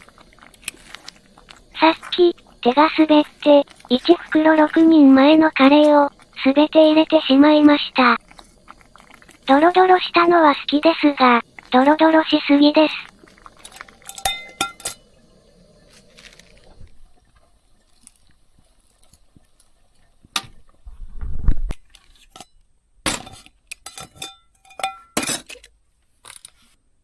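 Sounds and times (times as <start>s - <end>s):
utensil knocking metal pot: 14.0s - 15.0s, 23.1s - 25.4s.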